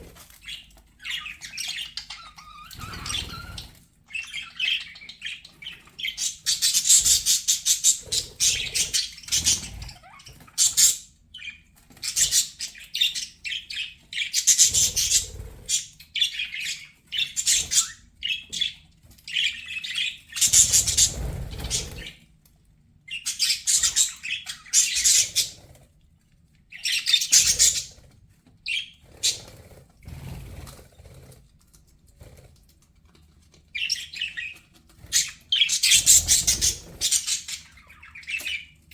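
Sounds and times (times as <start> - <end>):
budgerigars chattering: 0.5 - 22.2, 23.1 - 25.6, 26.8 - 28.0, 33.8 - 38.8.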